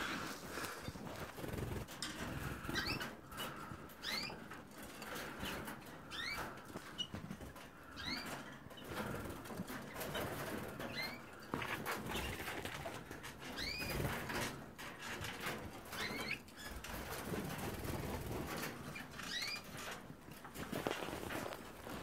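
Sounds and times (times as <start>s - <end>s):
wing flutters: 0.0s - 4.4s, 8.9s - 14.6s, 15.4s - 22.0s
canaries chirping: 0.0s - 22.0s
small clicks of birds moving: 0.4s - 22.0s.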